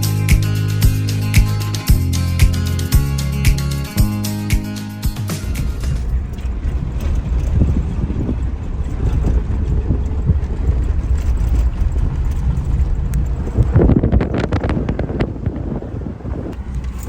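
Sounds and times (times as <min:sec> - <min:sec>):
wind buffeting microphone: 0:05.4 - 0:17.0.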